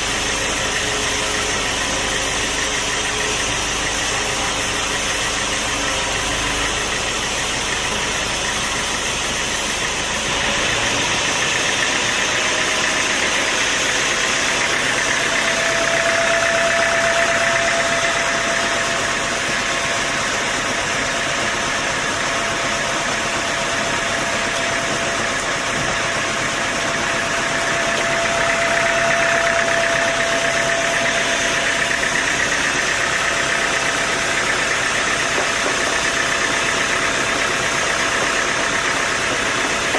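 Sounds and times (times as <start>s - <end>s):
high machine whine: 0.0s - 39.9s
sawmill machinery drone: 0.0s - 39.9s.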